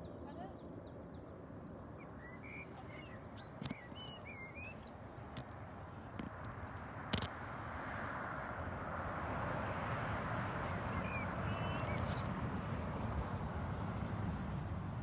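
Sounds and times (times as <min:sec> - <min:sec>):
sharp click: 0:03.6 - 0:04.2, 0:06.2 - 0:07.3, 0:11.7 - 0:12.6.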